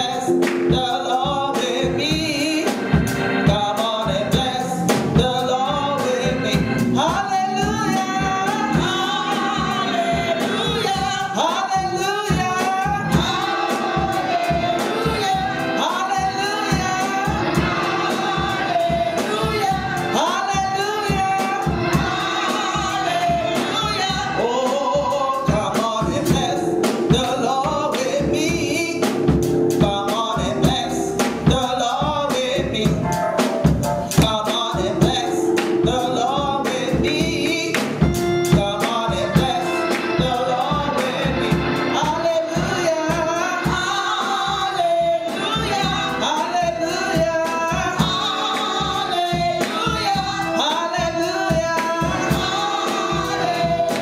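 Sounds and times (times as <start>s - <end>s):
band playing: 0.0s - 54.0s
voices singing gospel song: 0.0s - 54.0s
drum hits: 1.6s - 5.4s, 6.4s - 44.7s.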